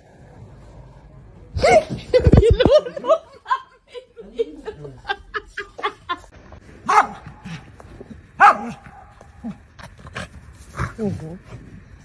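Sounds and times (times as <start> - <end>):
dog barking: 6.8 - 7.4, 8.4 - 9.1.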